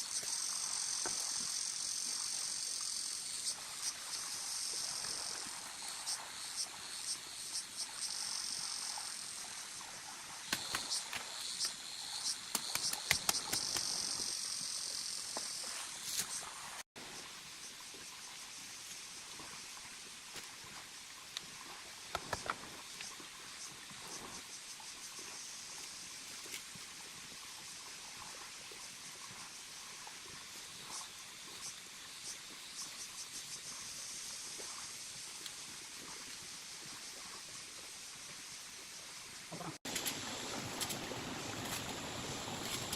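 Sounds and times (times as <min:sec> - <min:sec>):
high-pitched insect chirring: 0:00.0 - 0:09.6, 0:10.5 - 0:16.5
insects chirring: 0:00.0 - 0:19.8, 0:20.4 - 0:42.9
high ticks: 0:10.5 - 0:14.4
sharp clicks and knocks: 0:12.5 - 0:13.9, 0:22.1 - 0:22.6.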